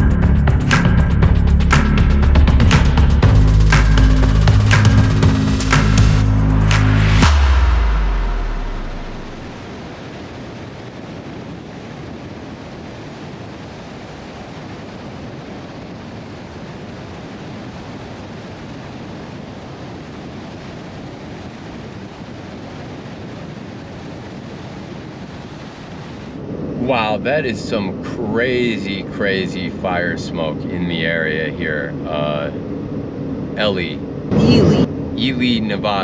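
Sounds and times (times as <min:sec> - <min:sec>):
music: 0:00.0 - 0:09.6.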